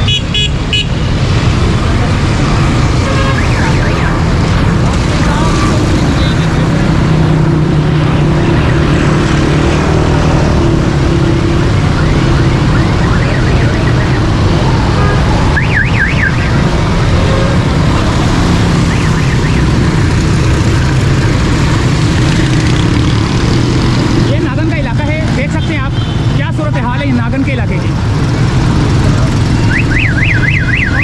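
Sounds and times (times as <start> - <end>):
traffic engines rushing: 0.0 - 31.0
warbling electronic siren: 3.3 - 4.8, 11.5 - 16.7, 18.6 - 20.1, 29.6 - 31.0.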